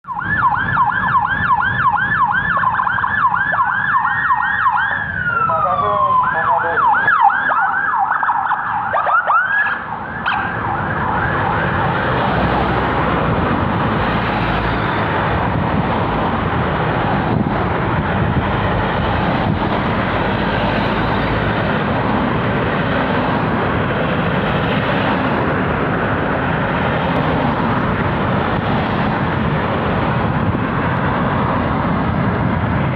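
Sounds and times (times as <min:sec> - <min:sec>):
police siren yelping: 0:00.0 - 0:15.6
passing traffic: 0:00.0 - 0:32.9.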